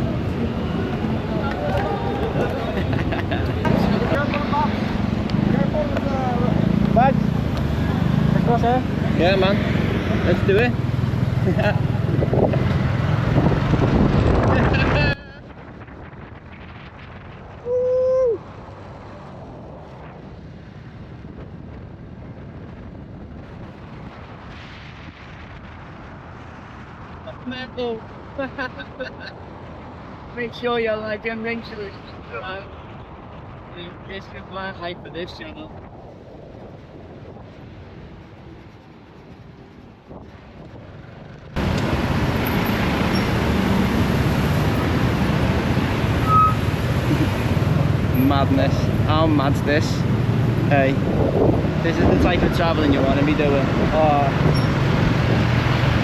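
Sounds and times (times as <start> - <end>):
motorcycle engine: 0.0 - 15.2
motorbike engine and road noise: 0.0 - 56.0
wind buffeting microphone: 0.0 - 56.0
short high beep: 46.2 - 46.6
horn honking: 46.2 - 46.7.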